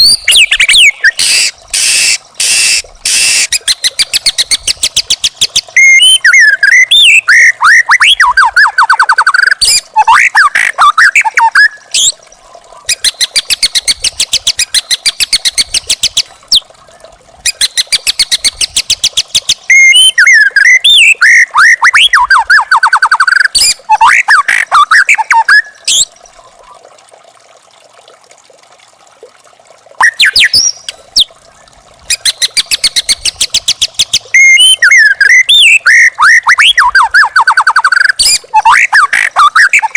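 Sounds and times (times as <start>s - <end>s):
bird singing loudly: 17.5s - 26.1s, 32.1s - 39.9s.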